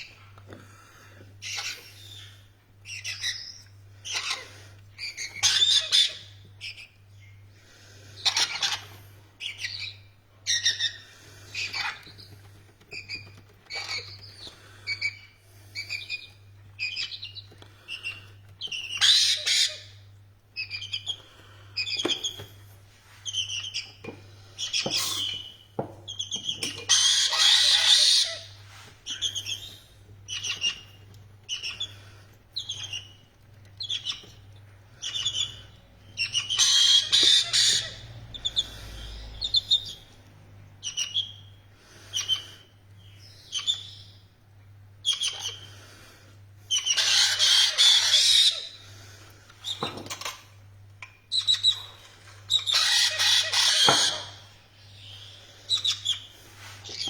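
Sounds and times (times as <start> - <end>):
parrots chirping: 1.4 - 7.4, 8.2 - 12.3, 12.9 - 22.4, 23.2 - 40.1, 40.8 - 44.2, 45.0 - 45.8, 46.7 - 48.9, 49.6 - 57.0
parrot harsh screeches: 19.0 - 19.9, 26.9 - 28.6, 36.3 - 38.0, 46.7 - 48.8, 52.5 - 54.5.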